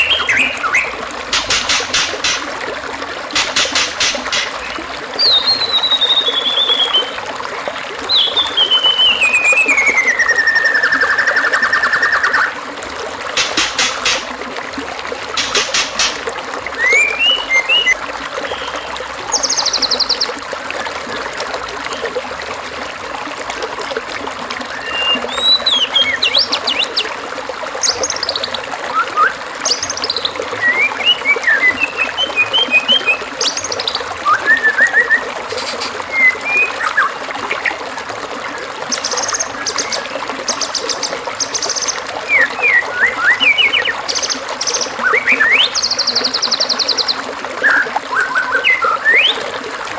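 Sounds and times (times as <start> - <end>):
trickle of running water: 0.0 - 49.9
songbird chirps and trills: 3.4 - 7.2, 16.8 - 20.3.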